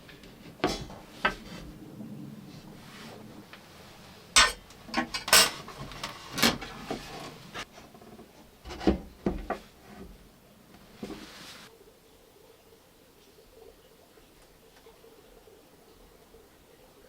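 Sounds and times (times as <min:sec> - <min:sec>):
objects knocking and clattering: 0:04.4 - 0:06.7.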